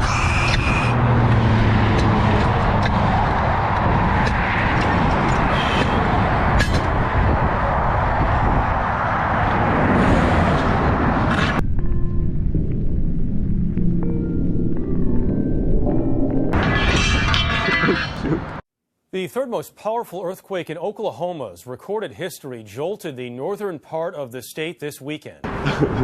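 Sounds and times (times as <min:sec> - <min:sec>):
highway vehicle and road noise: 0:00.0 - 0:18.6, 0:25.4 - 0:26.0.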